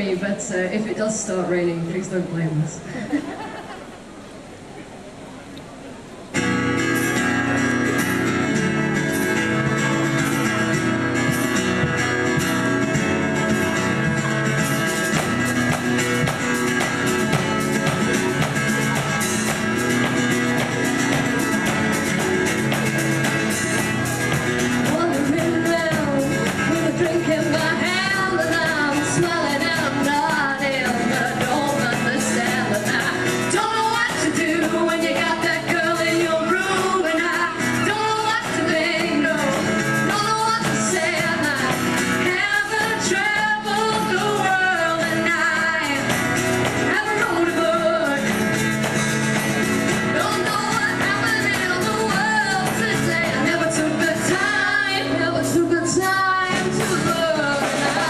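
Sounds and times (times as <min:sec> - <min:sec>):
strummed guitar chords: 0:06.2 - 0:58.0
women singing: 0:24.8 - 0:48.6, 0:50.0 - 0:58.0.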